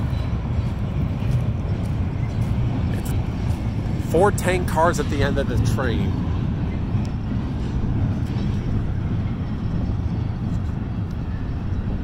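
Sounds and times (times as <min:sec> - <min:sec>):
freight train rumbling over bridge: 0:00.0 - 0:12.0.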